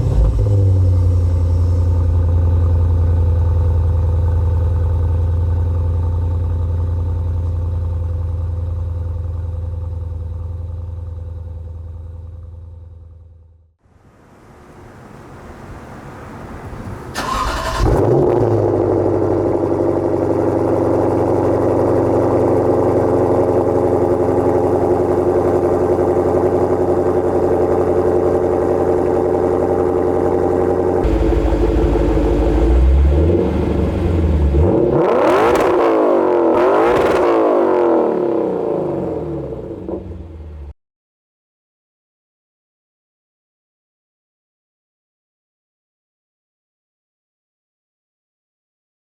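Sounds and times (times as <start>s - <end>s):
car engine idling: 0.0s - 13.6s, 15.7s - 35.5s
car engine cranking: 16.8s - 19.1s, 30.2s - 35.8s
car engine revving: 17.1s - 40.7s.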